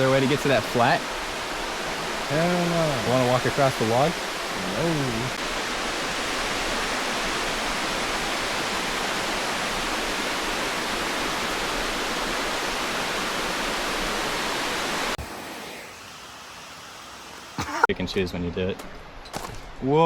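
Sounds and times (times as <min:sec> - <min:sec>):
water rushing over dam: 0:00.0 - 0:15.2.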